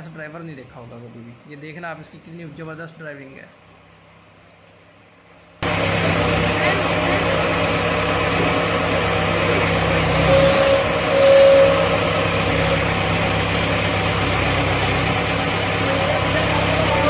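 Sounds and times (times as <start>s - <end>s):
diesel tractor engine running: 3.6s - 17.0s
higher steady tone: 5.6s - 17.0s.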